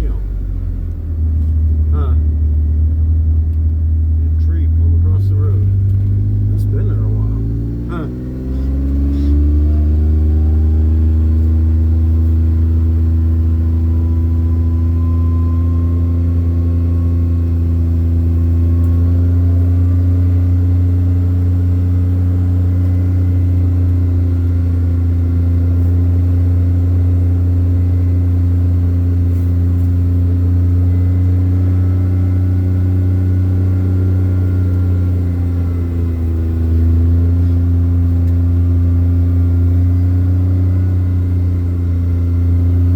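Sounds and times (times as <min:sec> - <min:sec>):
engine running under load: 0:00.0 - 0:42.9.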